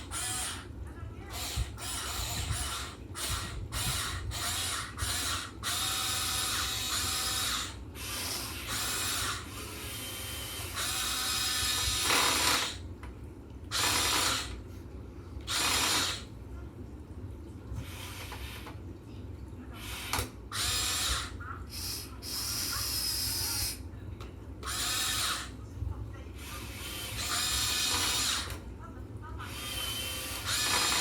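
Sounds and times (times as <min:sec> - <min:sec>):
electric gear motors whirring: 0:00.0 - 0:00.7, 0:01.3 - 0:12.8, 0:13.7 - 0:14.6, 0:15.5 - 0:16.3, 0:19.8 - 0:23.8, 0:24.6 - 0:25.5, 0:26.4 - 0:28.6, 0:29.5 - 0:31.0.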